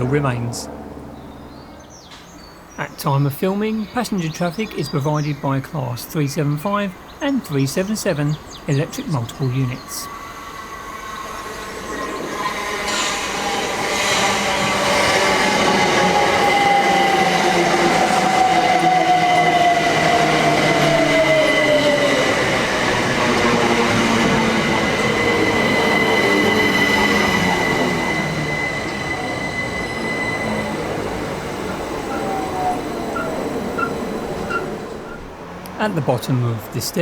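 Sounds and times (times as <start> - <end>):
train motor whine: 10.1 - 35.8
high squeal: 24.6 - 35.3.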